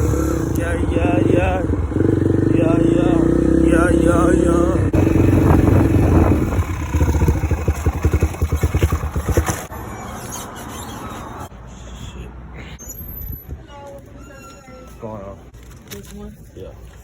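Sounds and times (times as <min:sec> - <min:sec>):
dirt bike engine idling: 0:00.0 - 0:09.7.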